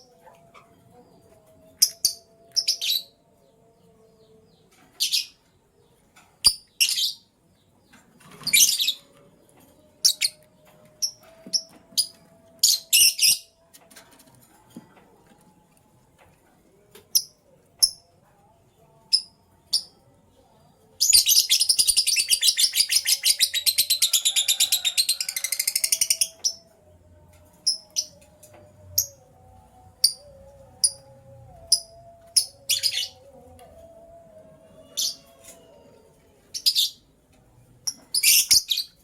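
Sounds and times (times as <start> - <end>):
lovebirds chirping: 16.7 - 34.2.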